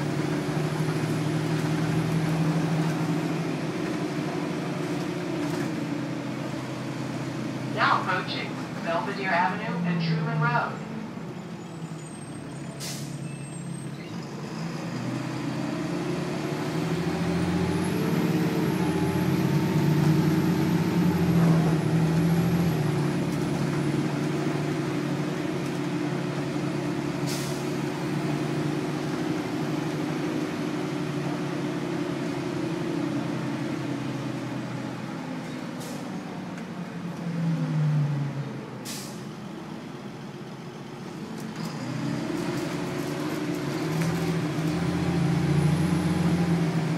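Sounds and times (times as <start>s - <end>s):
bus diesel engine: 0.0s - 46.9s.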